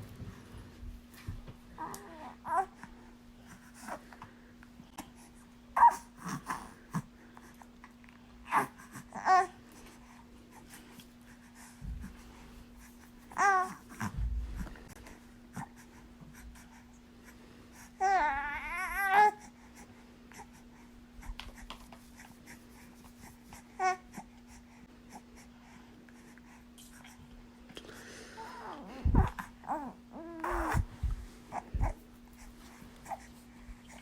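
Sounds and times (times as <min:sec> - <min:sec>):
baby cooing: 0:13.4 - 0:14.1, 0:28.5 - 0:30.9.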